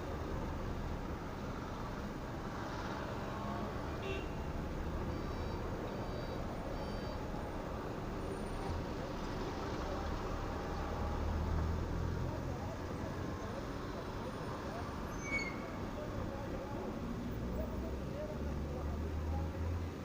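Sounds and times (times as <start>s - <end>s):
moving vehicle rumble: 0.0s - 20.0s
faint high beeps: 5.0s - 7.3s.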